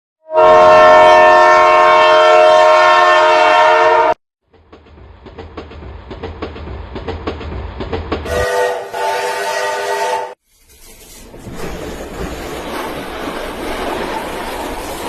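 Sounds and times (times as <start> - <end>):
train horn: 0.2 - 4.2, 8.3 - 10.4
train wheels clacking on rails: 4.5 - 8.6, 10.8 - 15.0.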